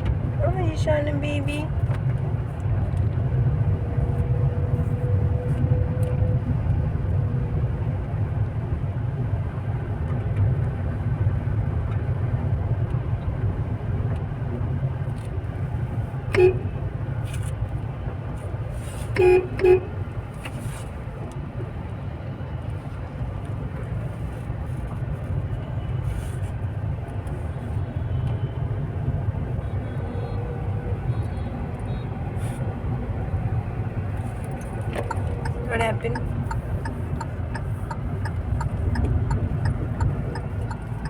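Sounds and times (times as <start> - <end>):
road rumble inside car: 0.0 - 41.0
car horn honks: 16.3 - 16.7, 19.2 - 20.0.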